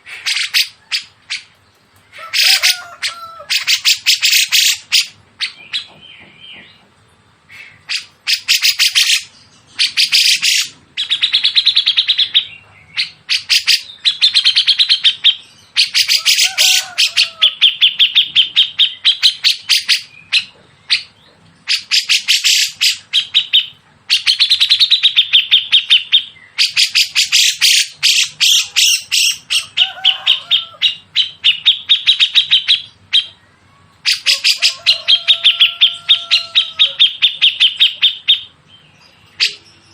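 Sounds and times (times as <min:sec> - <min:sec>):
songbirds chattering rapidly: 0:00.0 - 0:39.9.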